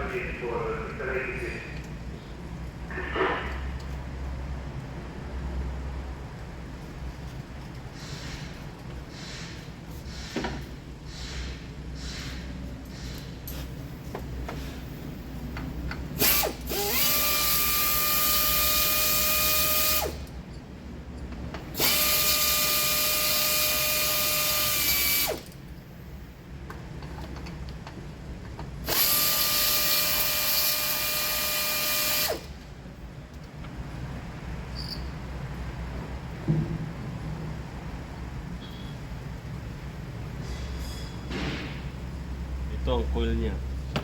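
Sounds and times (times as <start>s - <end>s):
cordless power tool motor whine: 16.2s - 20.2s, 21.8s - 25.4s, 28.9s - 32.5s.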